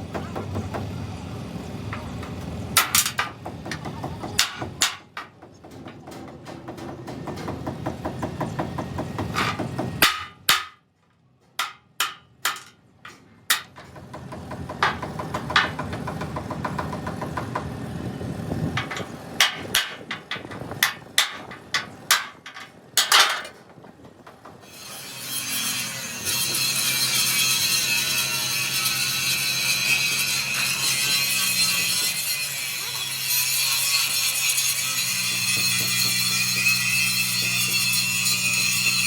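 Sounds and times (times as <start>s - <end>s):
hammer striking metal: 9.3s - 10.8s, 11.6s - 13.9s.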